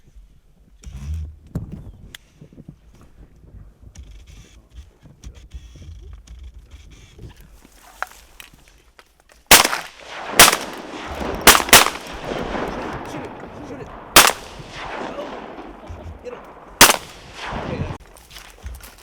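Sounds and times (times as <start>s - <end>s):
shotgun blasts with echo: 9.5s - 18.0s.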